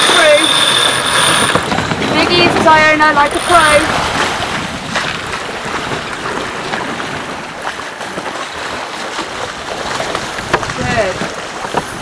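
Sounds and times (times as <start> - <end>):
sea water rushing: 0.0 - 12.0
wind rushing: 1.4 - 6.7.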